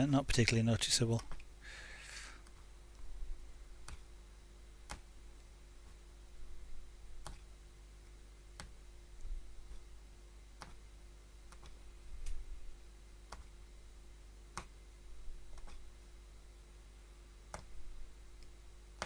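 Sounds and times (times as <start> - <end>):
punch needle clicking through cloth: 1.2 - 1.5, 3.8 - 4.1, 7.2 - 7.5, 8.6 - 8.8, 10.6 - 10.8, 11.5 - 12.4, 13.3 - 13.5, 14.5 - 14.8, 15.5 - 15.8.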